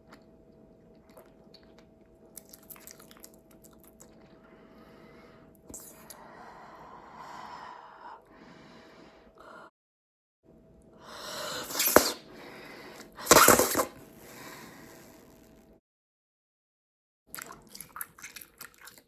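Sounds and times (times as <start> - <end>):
bubblegum blown and popped: 11.6 - 12.2.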